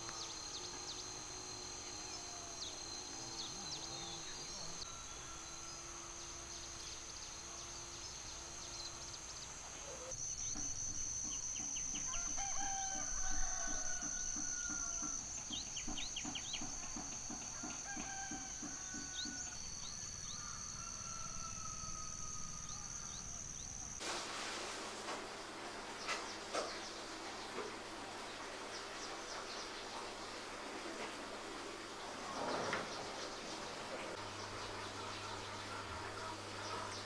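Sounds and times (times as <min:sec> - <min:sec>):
high-pitched insect drone: 0:00.0 - 0:24.0
rooster crowing: 0:04.0 - 0:06.0, 0:12.0 - 0:15.2, 0:17.3 - 0:23.4
birds chirping: 0:14.4 - 0:21.2, 0:25.4 - 0:37.0.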